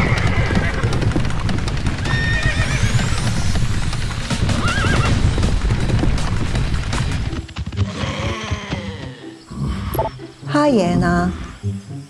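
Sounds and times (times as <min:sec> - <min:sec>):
horse whinnying: 0:00.0 - 0:01.0, 0:02.0 - 0:03.4, 0:04.6 - 0:05.2, 0:07.8 - 0:10.0
horses galloping: 0:00.0 - 0:09.5.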